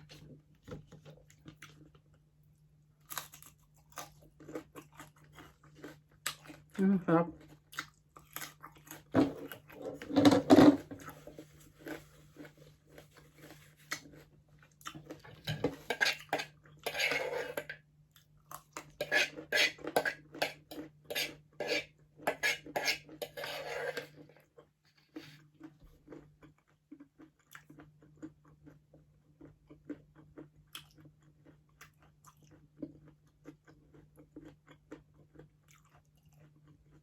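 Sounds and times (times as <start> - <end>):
chewing: 0.9 - 2.2, 3.0 - 6.8, 7.4 - 10.1, 11.0 - 21.2, 24.0 - 37.0
cutlery scraping a plate: 9.2 - 11.1, 15.4 - 17.8, 19.0 - 24.3.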